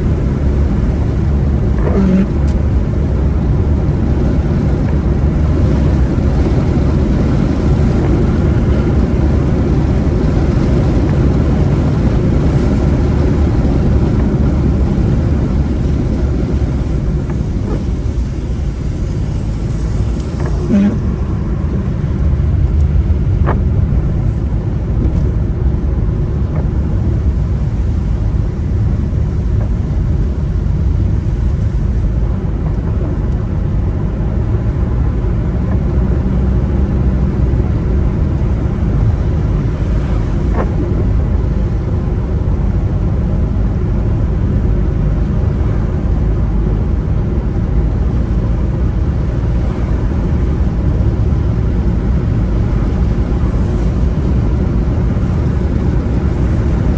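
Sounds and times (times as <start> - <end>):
car driving on wet road: 0.0 - 56.9.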